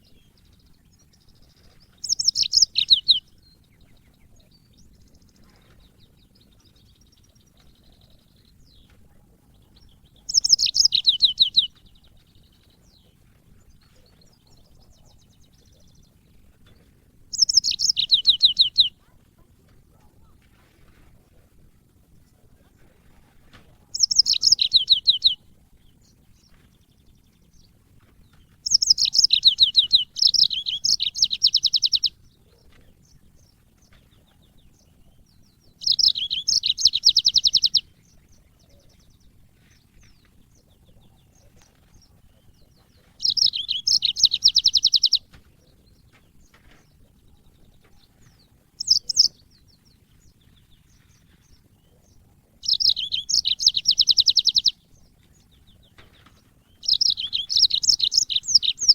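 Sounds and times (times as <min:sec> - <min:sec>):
canary singing high trills: 0:00.0 - 0:05.4, 0:09.7 - 0:12.5, 0:17.3 - 0:19.1, 0:23.9 - 0:25.6, 0:28.3 - 0:32.7, 0:34.8 - 0:39.4, 0:40.8 - 0:45.3, 0:46.6 - 0:49.8, 0:51.6 - 0:58.9.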